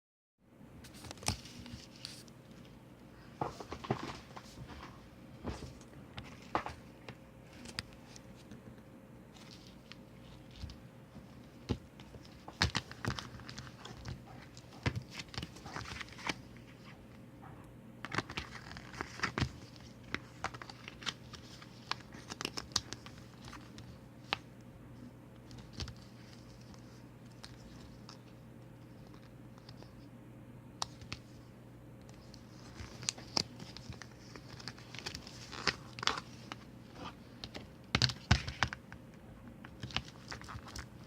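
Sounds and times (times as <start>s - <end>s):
faint steady hum: 0.4s - 41.0s
paper and plastic crinkling: 18.0s - 24.0s, 32.2s - 38.8s.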